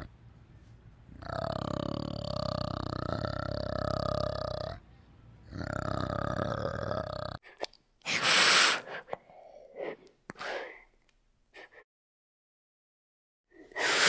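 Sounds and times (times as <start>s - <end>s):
orangutan grunting call: 1.2s - 4.8s, 5.4s - 7.4s
iguana hissing: 8.0s - 9.0s, 13.8s - 14.0s.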